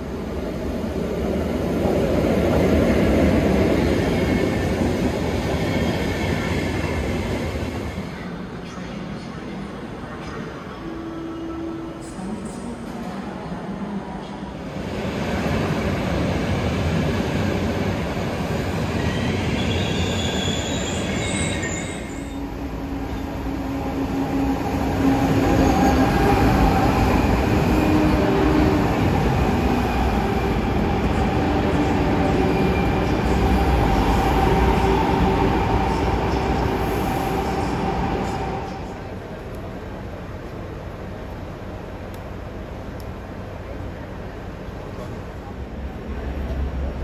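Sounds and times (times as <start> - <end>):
electric train humming past: 0.0 - 47.0
train wheels squealing on rails: 18.8 - 28.9.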